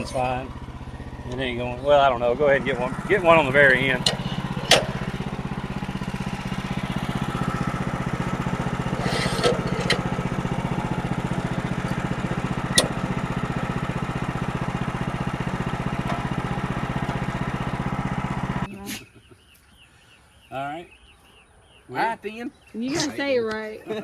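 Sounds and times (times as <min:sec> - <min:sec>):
small engine running: 0:00.0 - 0:18.8
sharp knocks: 0:02.9 - 0:15.2.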